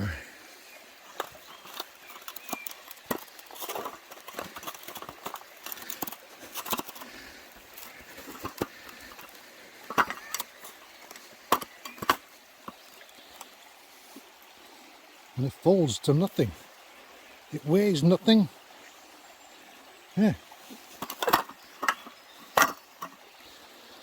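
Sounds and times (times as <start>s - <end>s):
folding table clicks and rattles: 1.2s - 7.1s, 21.0s - 23.2s.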